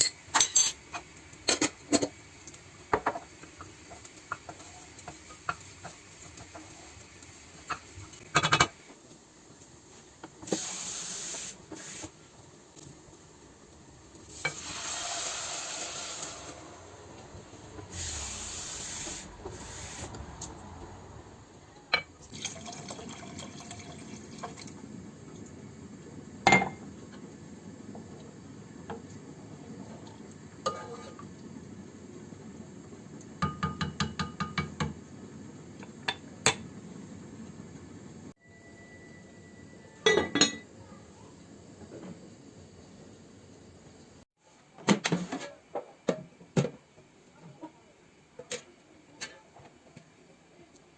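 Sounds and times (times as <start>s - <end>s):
dishes knocking and clinking: 2.9s - 3.3s, 26.5s - 26.8s, 33.4s - 35.0s, 40.0s - 40.7s
water running from tap: 22.2s - 24.8s.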